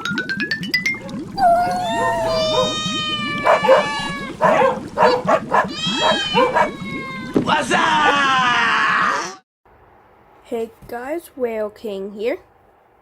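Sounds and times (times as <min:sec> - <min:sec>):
wavering animal-like cries: 0:01.4 - 0:07.3.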